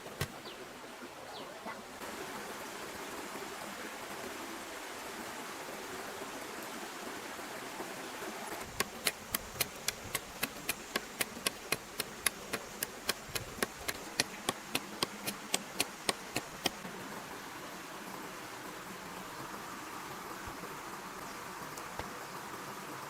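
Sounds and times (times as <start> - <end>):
sharp evenly spaced taps: 8.6 - 16.8.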